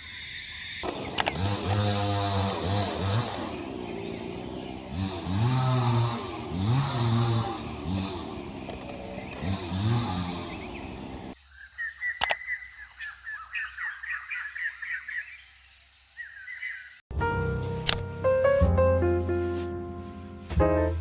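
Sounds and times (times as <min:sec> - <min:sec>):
small birds chirping: 0:00.0 - 0:17.1
sharp click: 0:12.2 - 0:12.5, 0:17.8 - 0:18.0.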